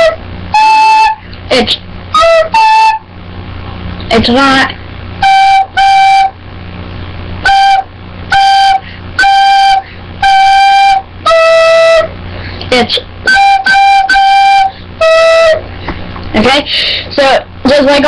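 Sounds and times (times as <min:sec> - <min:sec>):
recorder playing simple tune: 0:00.0 - 0:01.4, 0:02.1 - 0:03.1, 0:05.2 - 0:06.4, 0:07.4 - 0:12.2, 0:13.2 - 0:15.6.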